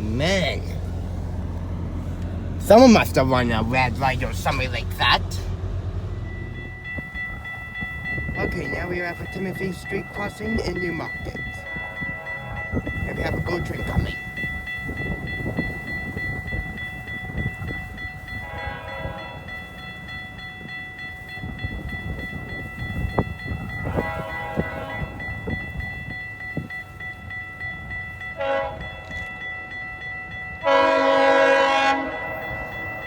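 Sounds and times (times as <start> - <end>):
train rumbling: 0.0 - 33.0
train air horn blasts: 11.6 - 12.9, 18.3 - 19.5, 23.8 - 25.2, 28.4 - 28.9, 30.6 - 33.0.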